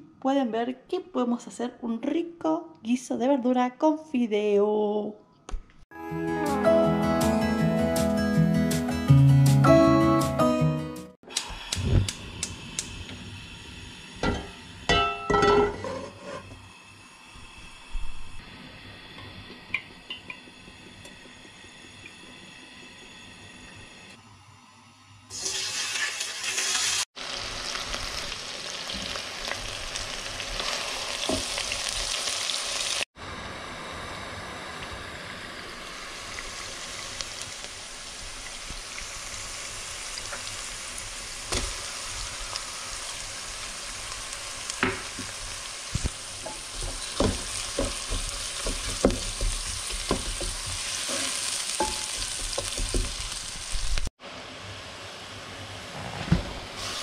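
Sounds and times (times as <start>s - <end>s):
peppers sizzling in hot oil: 11.2s - 24.1s, 25.3s - 33.1s, 35.1s - 54.1s, 56.7s - 57.0s
wooden spoon scraping a pan: 15.6s - 16.6s, 46.5s - 52.9s.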